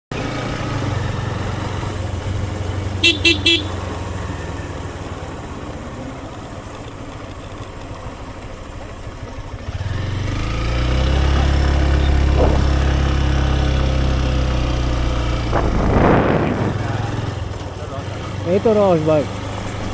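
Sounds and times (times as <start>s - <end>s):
motorcycle engine running: 0.1s - 19.9s
horn beeps: 3.0s - 4.0s.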